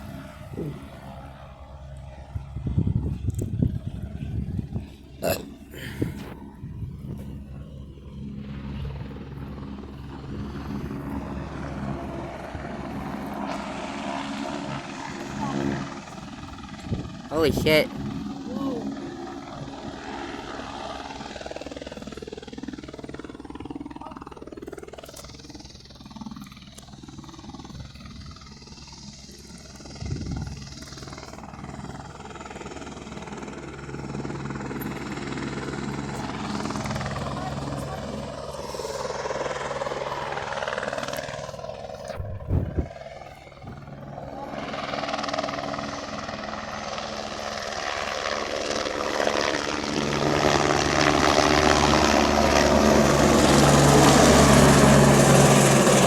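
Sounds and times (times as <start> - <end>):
helicopter engine and rotor drone: 0.0 - 56.0
low thump: 42.2 - 42.9.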